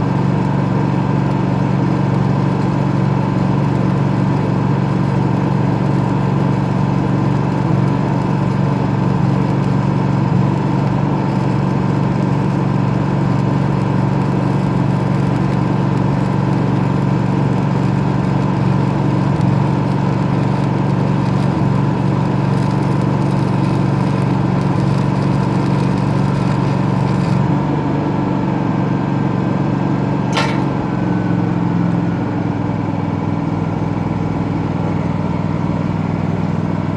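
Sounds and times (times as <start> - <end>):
arc welding hiss and crackle: 0.0 - 27.6
welding machine engine running: 0.0 - 36.9
sharp click: 30.3 - 30.9.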